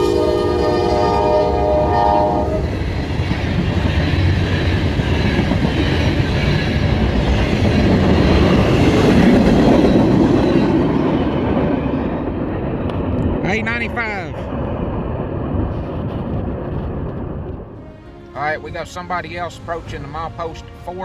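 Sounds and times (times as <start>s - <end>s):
locomotive horn chord: 0.0s - 2.8s, 17.8s - 21.0s
train wheel and rail noise: 0.0s - 21.0s.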